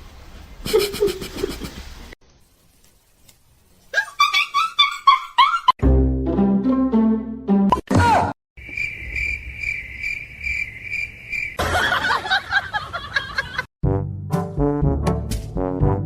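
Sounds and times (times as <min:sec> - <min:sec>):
cricket chirping: 0:08.6 - 0:11.6.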